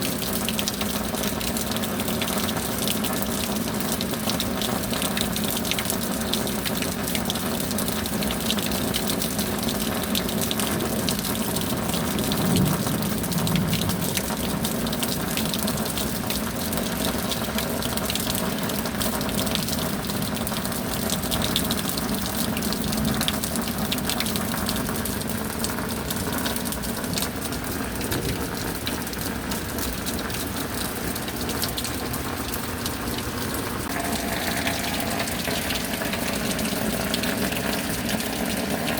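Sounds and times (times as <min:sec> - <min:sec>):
steady rain: 0:00.0 - 0:38.9
sharp raindrop hits close by: 0:10.6 - 0:15.8, 0:26.5 - 0:32.6.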